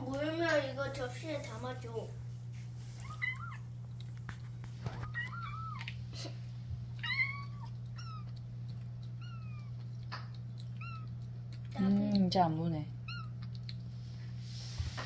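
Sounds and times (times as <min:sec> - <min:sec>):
steady low hum: 0:00.0 - 0:15.0
cats meowing: 0:03.0 - 0:03.8, 0:04.8 - 0:06.0, 0:06.9 - 0:09.9, 0:10.6 - 0:11.2.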